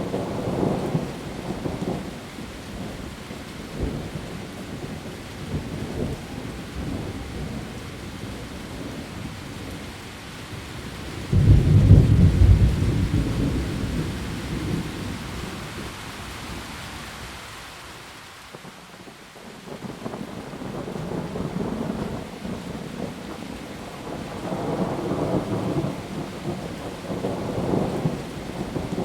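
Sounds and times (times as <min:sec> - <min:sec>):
heavy rain on leaves: 0:00.0 - 0:29.0
thunder rumbling: 0:10.9 - 0:15.9, 0:19.8 - 0:29.0.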